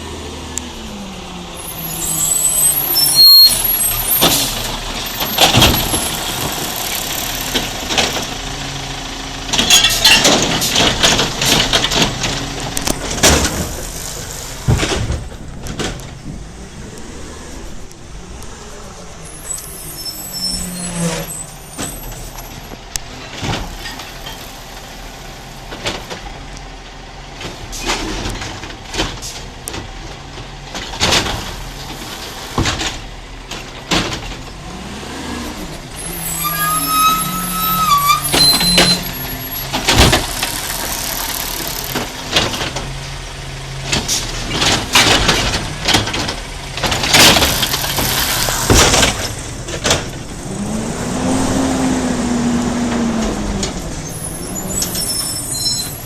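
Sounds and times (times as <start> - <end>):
garbage truck running: 0.0 - 56.0
brief squeal: 1.6 - 4.6, 19.3 - 22.7, 36.0 - 39.7, 54.0 - 56.0
metal clanks and knocks: 9.5 - 16.5.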